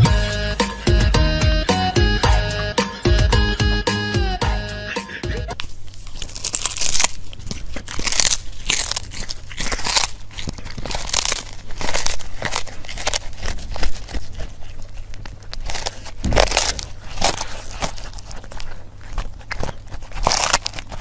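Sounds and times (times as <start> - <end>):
crunchy food being chewed: 5.6 - 21.0.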